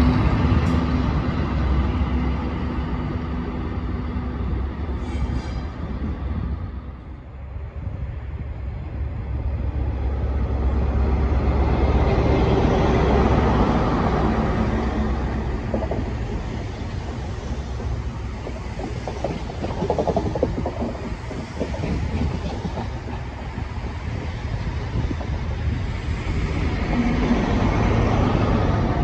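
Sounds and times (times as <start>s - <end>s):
train engine and wheels passing: 0.0s - 29.0s
locomotives running past: 9.8s - 29.0s.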